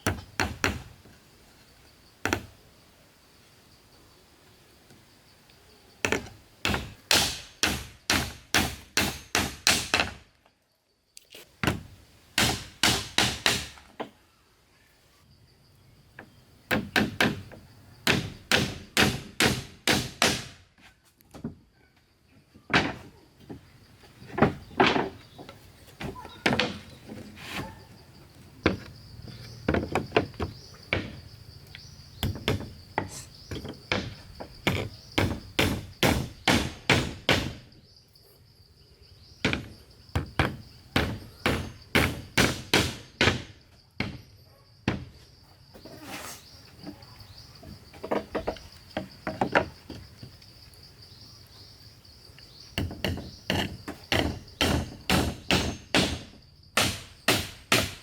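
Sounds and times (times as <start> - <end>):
hand tool striking wood: 0.0 - 0.9, 6.0 - 10.2, 11.6 - 14.1, 16.7 - 20.6, 32.2 - 37.6, 39.4 - 44.2, 52.8 - 58.0.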